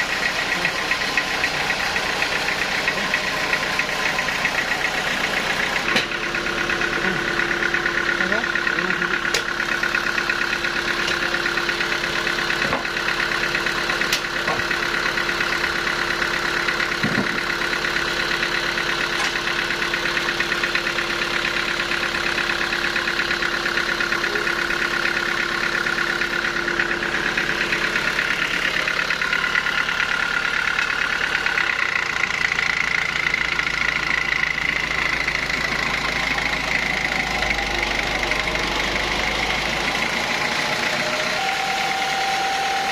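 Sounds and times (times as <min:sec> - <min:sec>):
sawmill machinery humming: 0:00.0 - 0:42.9
high machine whine: 0:34.8 - 0:42.9.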